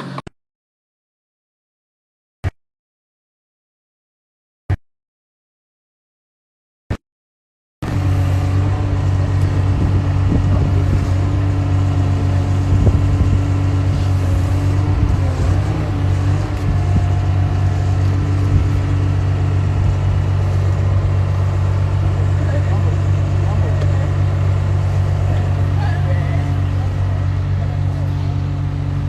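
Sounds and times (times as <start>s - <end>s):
motor humming: 7.8s - 29.0s.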